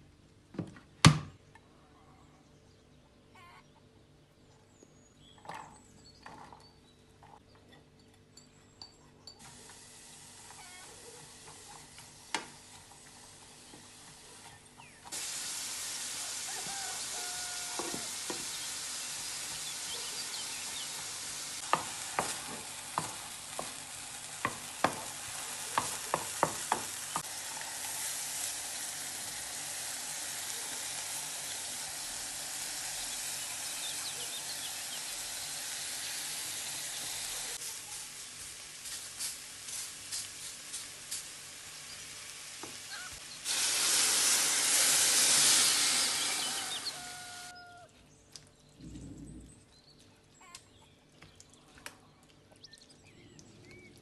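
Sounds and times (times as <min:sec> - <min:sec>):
food frying in hot oil: 0:09.4 - 0:47.6.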